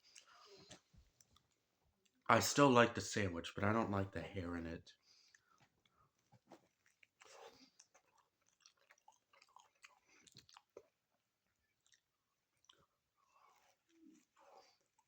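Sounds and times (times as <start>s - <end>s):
chewing sandwich with mouth smacks: 0.0s - 2.3s, 5.2s - 15.0s.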